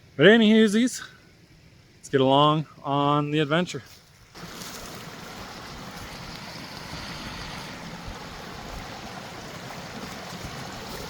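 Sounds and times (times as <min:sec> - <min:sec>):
creek water rushing: 0:04.1 - 0:11.0.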